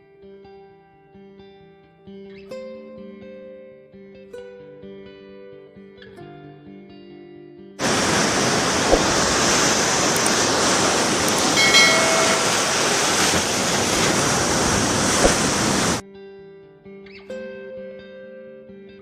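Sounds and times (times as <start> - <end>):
light knocks: 7.8 - 10.6
loud steady rushing noise: 7.8 - 16.0.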